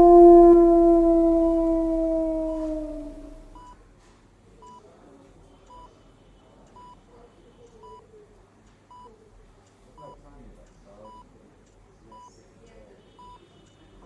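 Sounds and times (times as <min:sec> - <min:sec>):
faint wavering sounds: 0:00.0 - 0:03.6.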